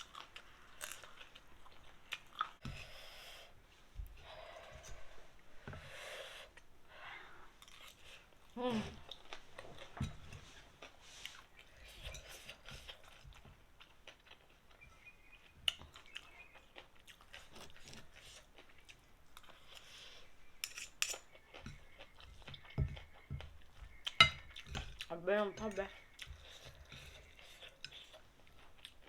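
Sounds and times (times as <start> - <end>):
person chewing: 0.0 - 3.3, 7.4 - 25.1, 26.0 - 29.0.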